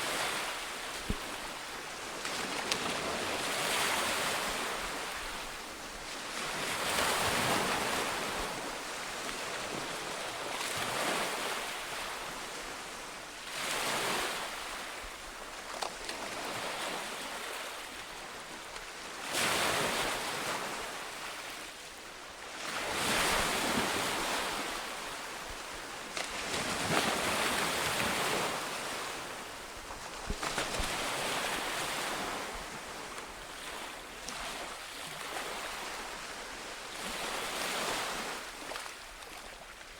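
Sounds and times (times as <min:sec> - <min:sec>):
ocean waves breaking on shore: 0:00.0 - 0:15.1, 0:22.4 - 0:39.9.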